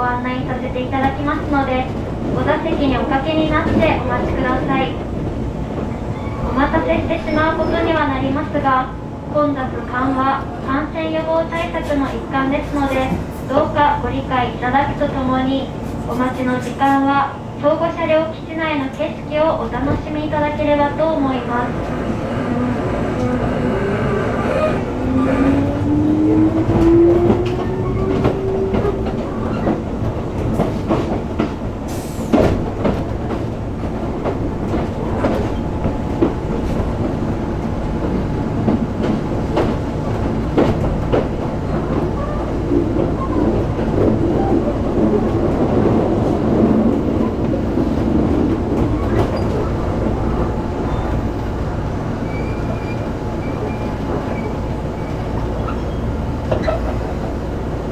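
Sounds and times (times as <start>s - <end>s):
wheels clacking over rail joints: 21.2s - 51.2s
faint wheel squeal: 52.2s - 57.0s.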